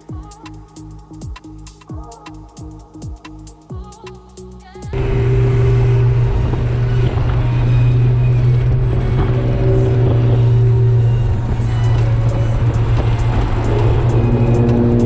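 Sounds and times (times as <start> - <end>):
car engine droning: 5.0 - 15.0.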